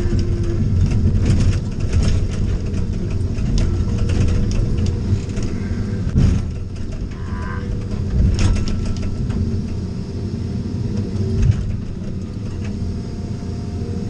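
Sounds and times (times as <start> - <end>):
knocks and rattles: 0.0 - 9.8
vehicle engine and road rumble: 0.0 - 14.0.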